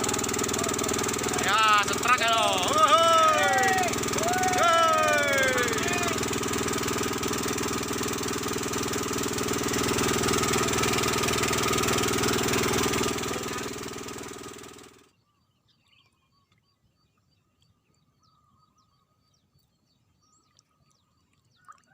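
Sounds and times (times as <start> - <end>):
engine running: 0.0 - 15.1
faint bird chirps: 15.1 - 21.9.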